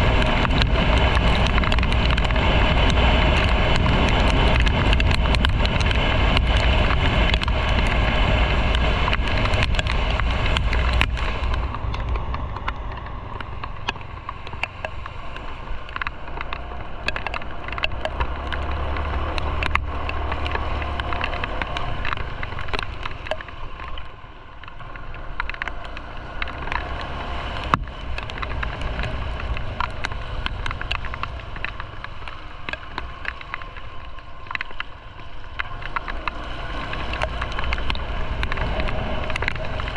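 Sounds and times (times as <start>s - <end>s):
light ticks: 0.0s - 39.9s
road noise: 0.0s - 39.9s
wind rushing over microphone: 0.0s - 39.9s
motorcycle engine: 24.8s - 33.8s.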